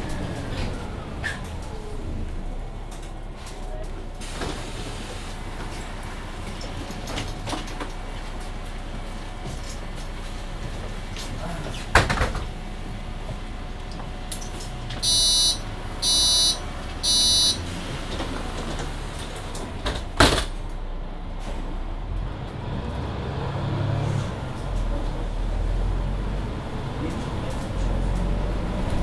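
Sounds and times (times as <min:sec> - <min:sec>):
bus engine drone: 0:00.0 - 0:29.0
short high electronic beeps: 0:15.0 - 0:17.6.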